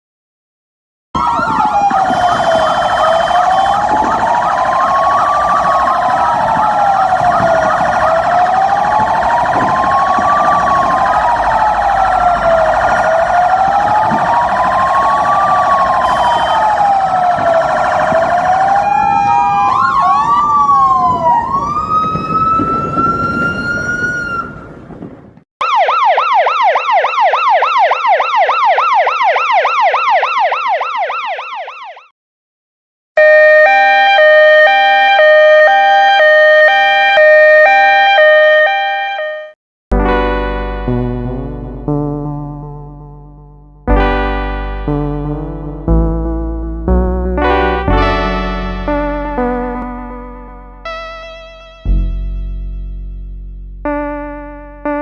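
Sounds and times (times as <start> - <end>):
fire truck electronic siren: 1.2 - 32.1, 33.2 - 55.0.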